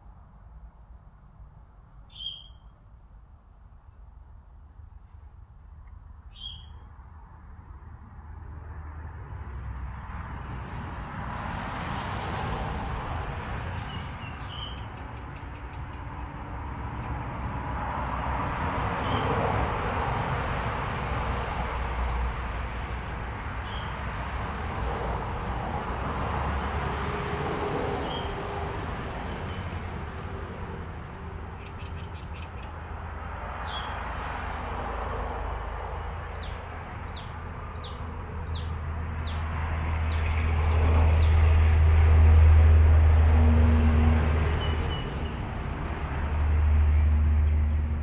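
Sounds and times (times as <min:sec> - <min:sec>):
background traffic rumble: 0:00.0 - 0:48.0
bird chirping: 0:02.1 - 0:02.7, 0:06.3 - 0:06.9, 0:31.6 - 0:32.8.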